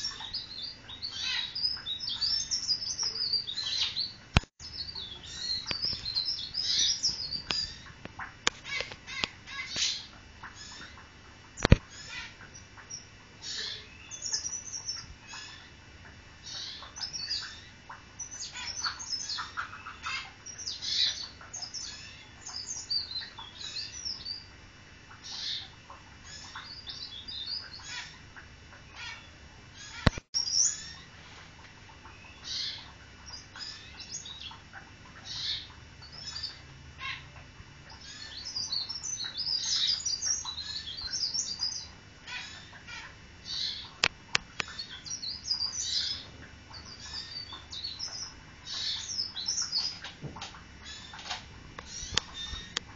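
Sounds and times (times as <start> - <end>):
small bird high chirps: 0.0 - 7.9, 8.5 - 11.0, 11.6 - 15.8, 16.4 - 24.5, 25.1 - 28.2, 28.9 - 31.1, 32.0 - 34.6, 35.2 - 44.0, 44.6 - 52.9
sharp click: 11.6 - 11.9, 30.0 - 30.3.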